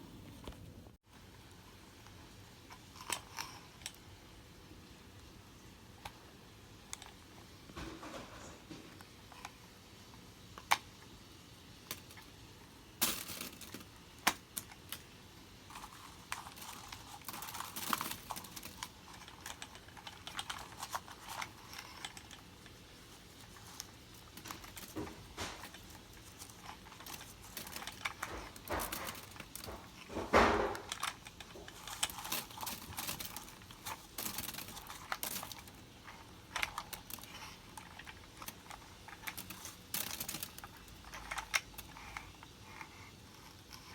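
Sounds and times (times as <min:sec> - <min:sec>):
objects clattering: 0:07.8 - 0:09.0, 0:13.0 - 0:15.1, 0:15.7 - 0:42.2
small hard objects clicking: 0:15.7 - 0:42.5.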